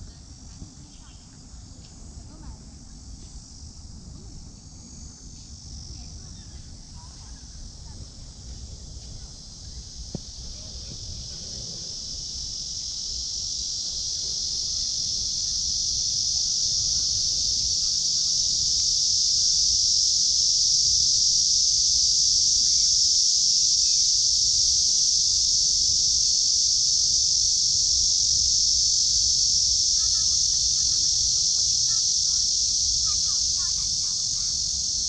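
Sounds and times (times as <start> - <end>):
cicadas chorus: 0.0 - 35.0.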